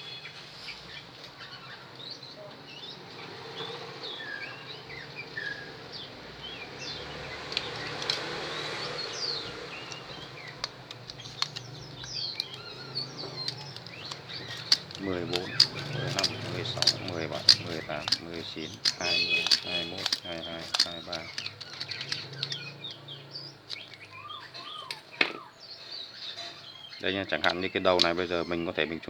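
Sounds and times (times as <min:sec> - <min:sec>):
small birds chirping: 0:00.0 - 0:29.0
faint wire winding clicks: 0:06.9 - 0:25.1, 0:26.5 - 0:29.0.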